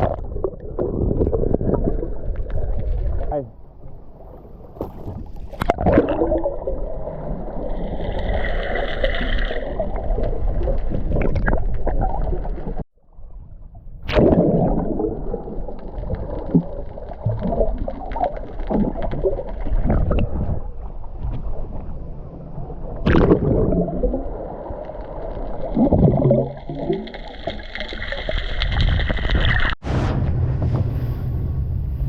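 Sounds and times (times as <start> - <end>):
steady low rumble: 29.8 - 32.0.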